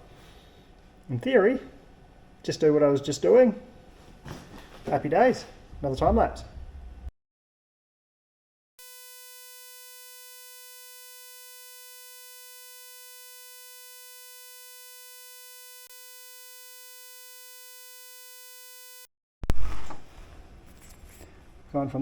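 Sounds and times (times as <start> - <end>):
electronic buzzing tone: 8.8 - 19.1.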